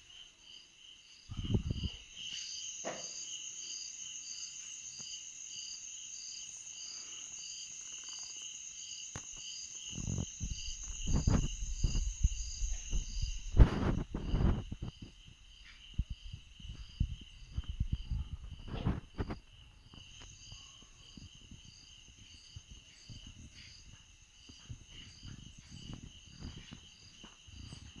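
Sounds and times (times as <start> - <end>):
insects chirping in chorus: 0.0 - 28.0
low knocks and rumbles: 10.2 - 19.4.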